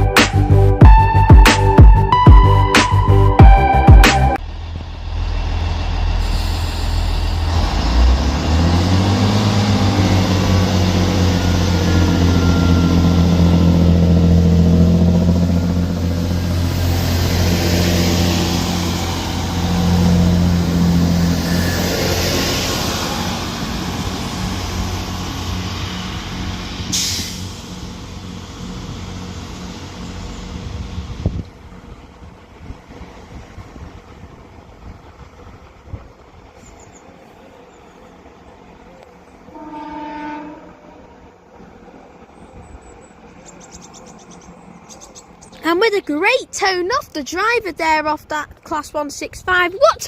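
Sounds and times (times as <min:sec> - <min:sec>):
train diesel engines pulling away: 0:00.0 - 0:49.6
short sharp hiss: 0:26.9 - 0:27.8.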